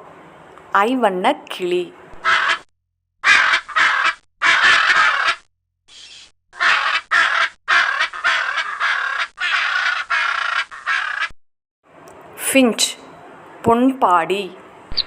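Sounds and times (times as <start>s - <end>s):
macaw squawking: 2.2s - 2.6s, 3.2s - 11.3s.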